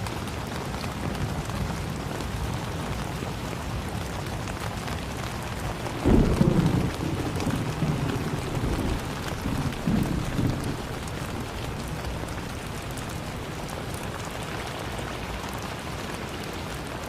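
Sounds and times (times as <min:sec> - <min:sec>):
heavy rain falling: 0:00.0 - 0:17.0
thunder rumbling: 0:05.4 - 0:14.7.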